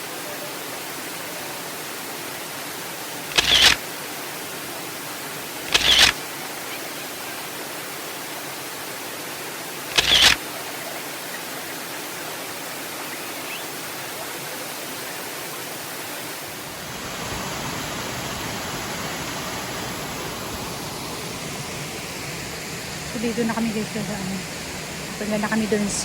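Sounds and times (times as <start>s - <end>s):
rushing stream and waterfall: 0.0s - 26.0s.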